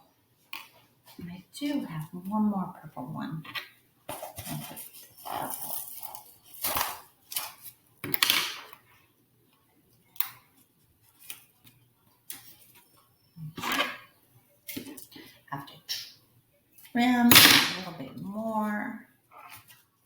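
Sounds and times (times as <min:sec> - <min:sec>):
scrapes and knocks: 0:03.5 - 0:06.7.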